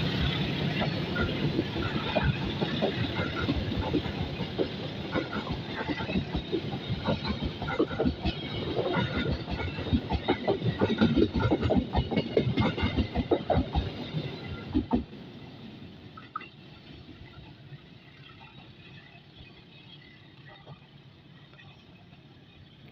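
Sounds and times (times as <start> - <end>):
train wheels clattering: 0.0 - 15.1.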